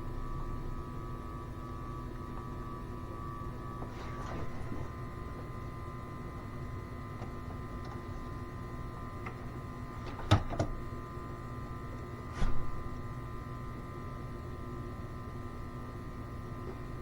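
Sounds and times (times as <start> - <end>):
smoke machine electric hum: 0.0 - 17.0.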